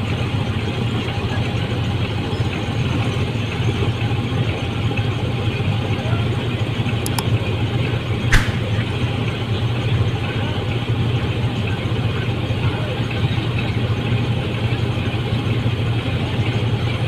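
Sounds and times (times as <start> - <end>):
diesel engine running: 0.0 - 17.0
sharp knock: 8.3 - 8.8.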